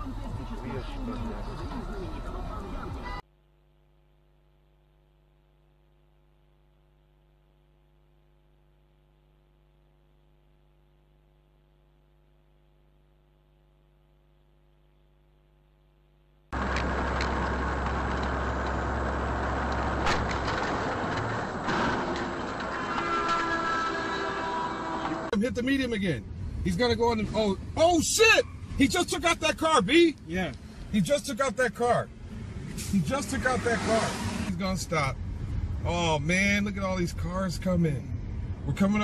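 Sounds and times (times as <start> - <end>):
faint steady hum: 3.2 - 19.8
motor vehicle driving: 16.6 - 39.0.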